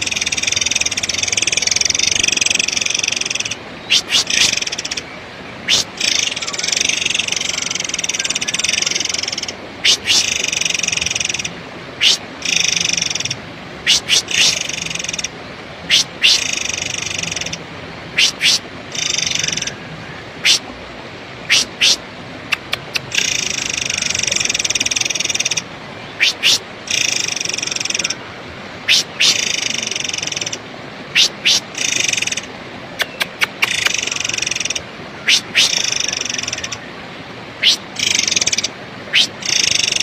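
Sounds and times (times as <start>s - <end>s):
bird buzzy rattling trills: 0.0s - 5.1s, 18.2s - 19.8s
bird whistled notes: 3.8s - 4.6s, 15.9s - 16.6s, 31.2s - 31.6s, 37.6s - 37.8s, 39.1s - 39.3s.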